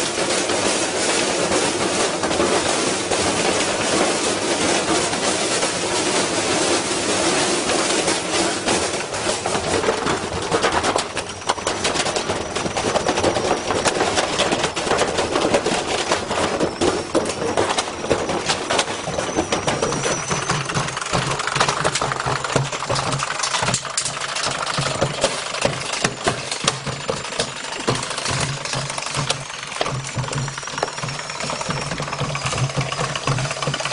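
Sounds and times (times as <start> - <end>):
washing machine banging and rattling: 0.0 - 33.9
low motor hum: 9.1 - 33.9.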